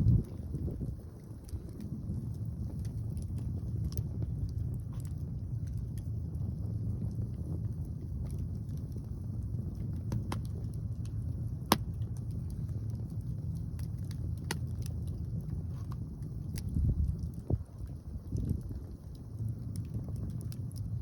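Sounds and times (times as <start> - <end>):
fire popping: 0.0 - 21.0
wind on microphone: 0.0 - 21.0
wood fire crackling: 0.0 - 21.0.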